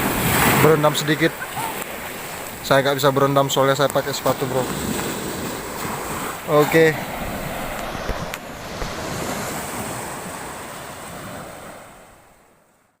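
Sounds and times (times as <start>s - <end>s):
sea surf washing in: 0.0s - 12.9s
wind buffeting microphone: 4.1s - 11.8s.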